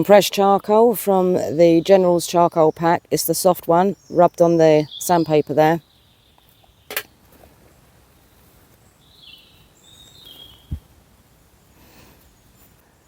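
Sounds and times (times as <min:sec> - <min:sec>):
high bird chirps: 0:08.4 - 0:10.9.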